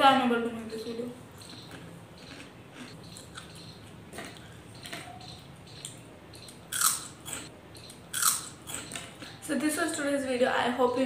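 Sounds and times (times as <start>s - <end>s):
person chewing fries: 1.4s - 5.2s, 6.7s - 9.4s.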